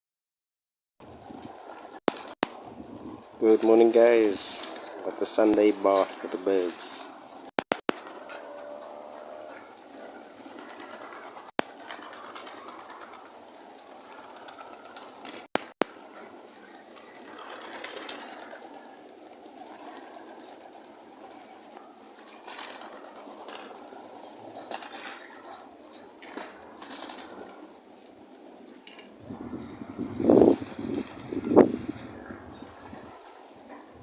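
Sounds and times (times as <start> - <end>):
pigeons cooing: 1.2 - 34.0
sharp clicks: 7.6 - 8.1, 15.6 - 15.9.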